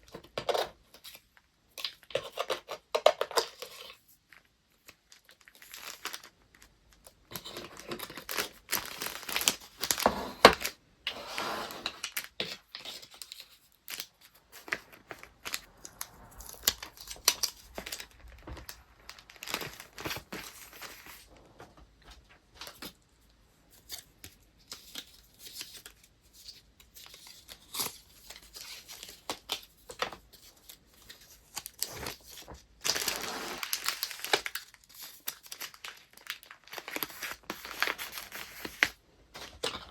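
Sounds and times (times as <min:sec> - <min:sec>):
paper rustling and crinkling: 0:02.0 - 0:39.9
paper tearing: 0:32.9 - 0:34.4.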